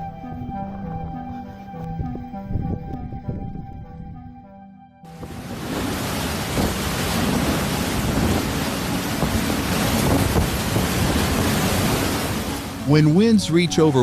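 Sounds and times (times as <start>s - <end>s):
wind buffeting microphone: 0.3s - 4.2s, 5.1s - 12.8s
strong storm wind blowing: 2.0s - 3.8s, 5.1s - 12.8s.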